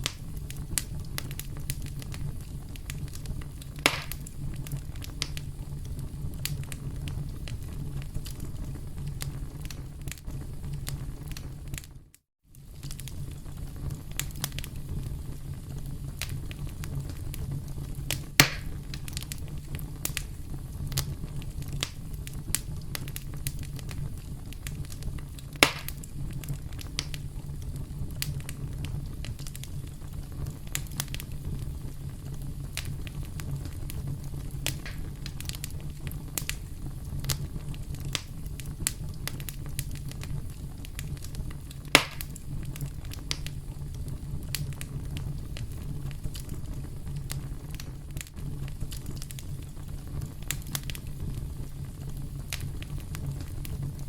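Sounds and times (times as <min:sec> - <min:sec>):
burning wood popping: 0:00.0 - 0:54.0
campfire flames rumbling: 0:00.0 - 0:54.0
fire crackles: 0:00.0 - 0:54.0.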